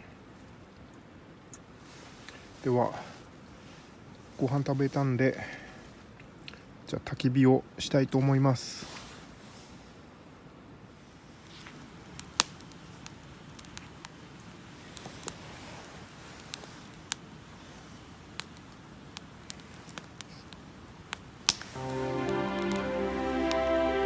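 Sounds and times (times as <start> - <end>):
faint steady hiss: 0.0 - 24.0
firewood snapping and crackling: 11.5 - 14.2, 14.8 - 15.4, 16.1 - 21.8.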